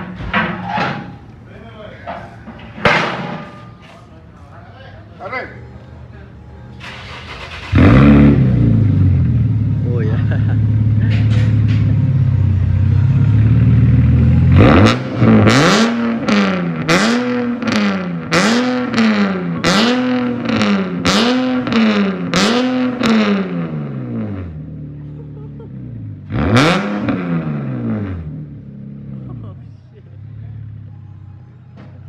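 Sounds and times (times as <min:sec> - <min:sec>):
car engine idling and revving: 0:05.9 - 0:32.0.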